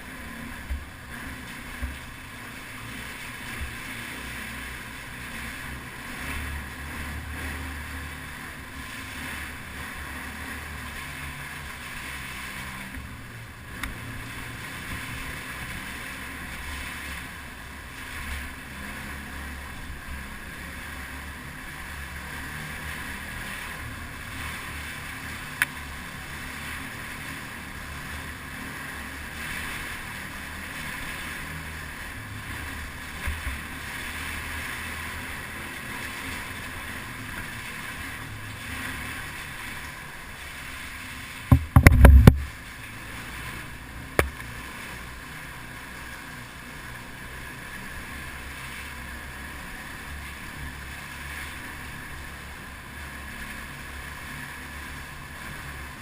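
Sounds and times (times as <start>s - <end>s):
motorcycle engine running: 41.5s - 42.6s
wind noise on microphone: 41.5s - 42.6s.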